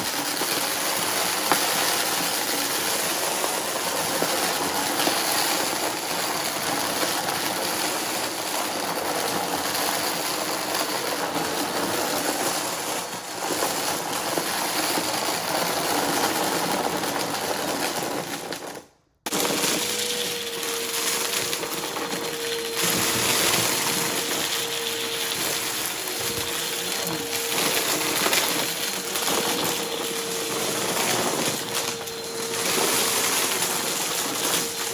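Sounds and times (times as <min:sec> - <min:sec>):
vacuum cleaner running: 0:00.0 - 0:34.9
vacuum whine: 0:19.3 - 0:34.9.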